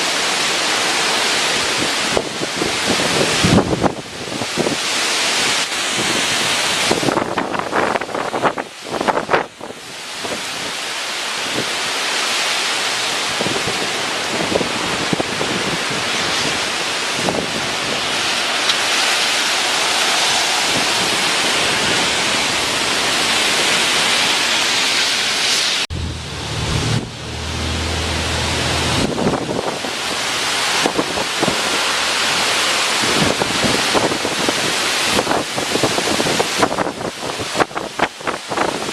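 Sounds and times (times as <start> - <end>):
wind and driving rain: 0.0 - 38.9
low rumble: 25.9 - 30.5.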